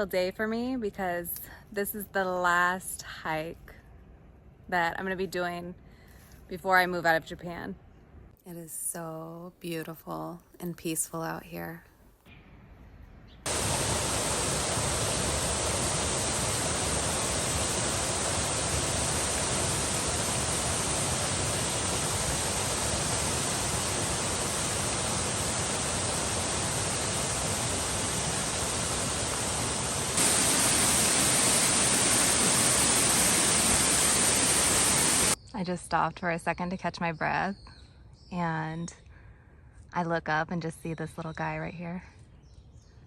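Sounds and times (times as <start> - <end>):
waterfall rushing: 13.5 - 35.4.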